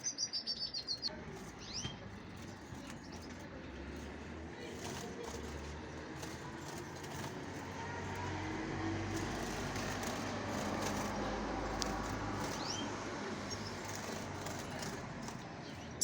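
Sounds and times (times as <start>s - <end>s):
faint bird chirps: 0.0s - 3.4s
distant traffic rumble: 0.0s - 16.0s.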